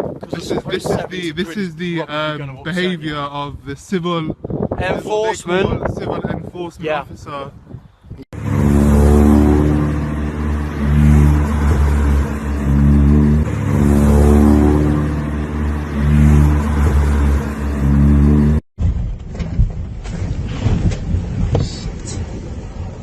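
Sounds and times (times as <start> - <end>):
wind noise on microphone: 0.0 - 1.7, 2.8 - 10.2, 18.8 - 23.0
car engine revving: 8.3 - 18.6.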